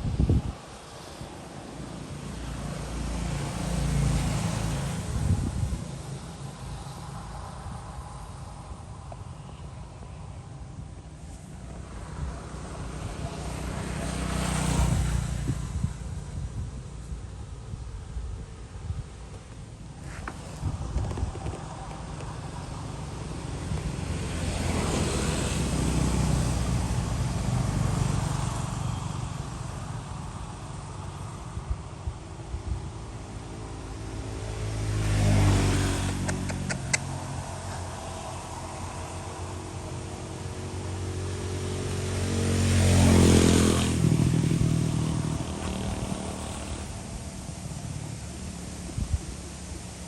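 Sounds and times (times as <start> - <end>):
vehicle passing by: 0.0 - 19.0, 19.7 - 50.0
tyre and air rush: 15.0 - 23.9.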